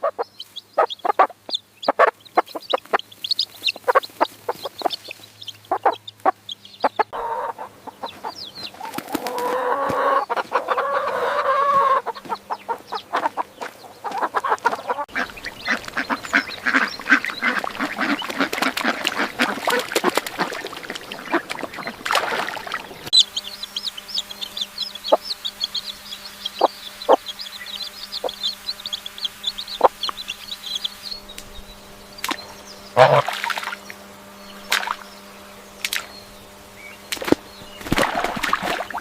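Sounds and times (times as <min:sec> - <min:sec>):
waterfowl quacking and honking: 0:00.0 - 0:03.0, 0:03.6 - 0:23.3, 0:32.9 - 0:33.6
steady low hum: 0:00.0 - 0:39.0.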